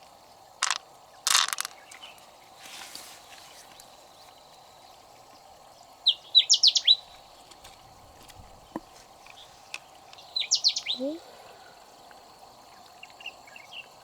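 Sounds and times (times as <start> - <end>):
songbird whistling: 6.1 - 7.1, 10.3 - 11.2.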